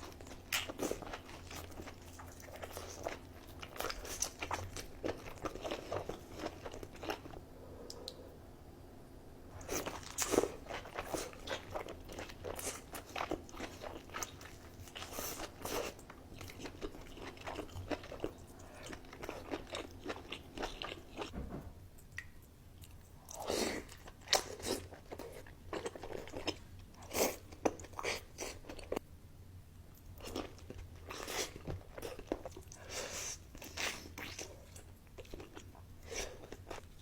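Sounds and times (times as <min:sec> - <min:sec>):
crunchy food chewing: 0:09.6 - 0:21.3.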